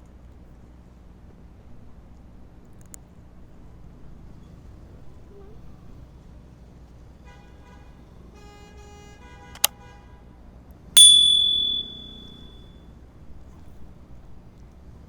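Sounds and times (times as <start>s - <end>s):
ringing metallic strike: 11.0s - 12.4s
sharp click: 11.0s - 12.4s.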